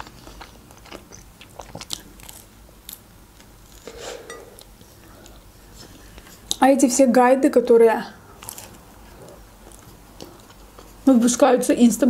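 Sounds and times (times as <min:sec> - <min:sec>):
chewing pizza: 0:00.0 - 0:03.8, 0:08.3 - 0:11.1.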